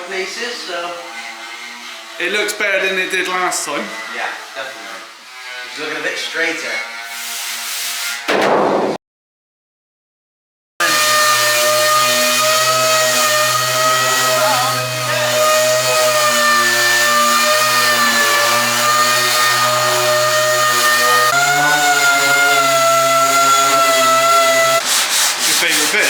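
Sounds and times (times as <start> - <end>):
electric power tool motor running: 10.8 - 24.8.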